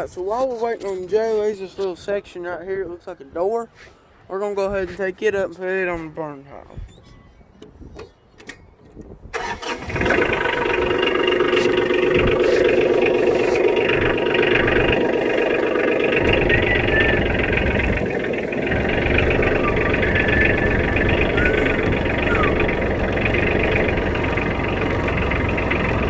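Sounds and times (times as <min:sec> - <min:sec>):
diesel tractor engine running: 0:09.4 - 0:26.0.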